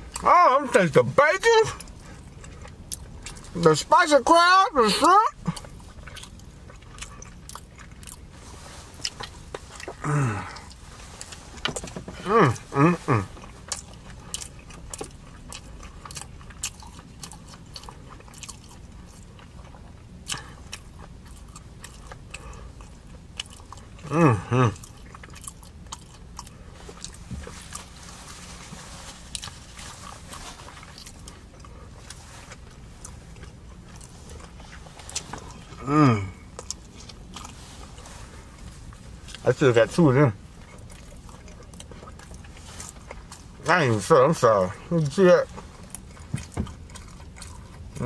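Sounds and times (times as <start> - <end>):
chewing and lip smacking: 0.0 - 48.0
person humming mm: 12.2 - 13.3, 24.0 - 24.8, 35.8 - 36.4.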